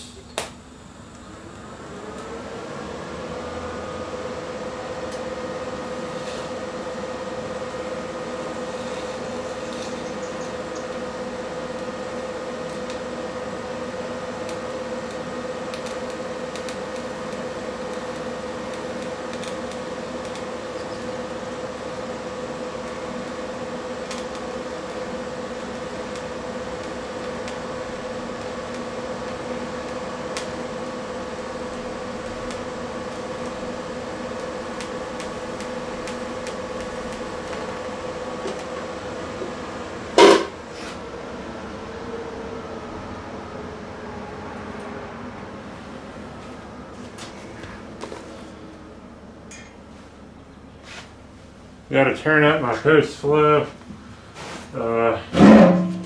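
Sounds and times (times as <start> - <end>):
welding arc buzzing: 0.0 - 40.8.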